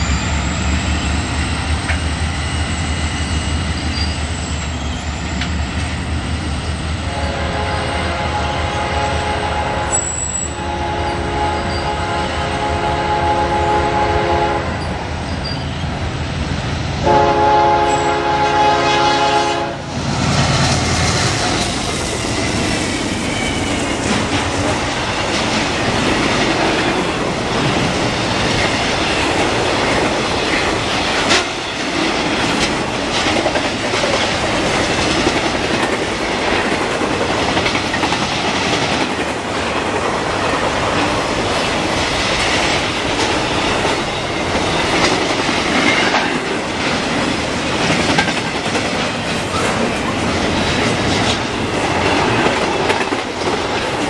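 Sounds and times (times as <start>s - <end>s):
locomotive air horn: 7.1s - 14.8s, 17.0s - 19.9s
train wheels clattering over rails: 20.0s - 54.0s.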